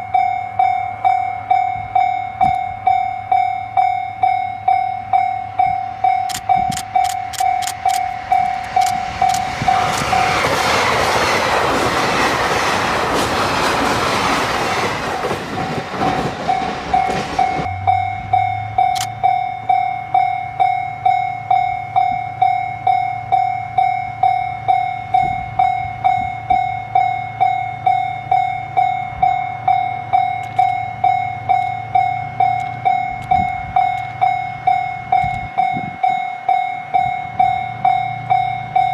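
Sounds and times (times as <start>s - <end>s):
train passing rumble: 0.0s - 38.9s
level crossing bell ringing: 16.5s - 38.9s.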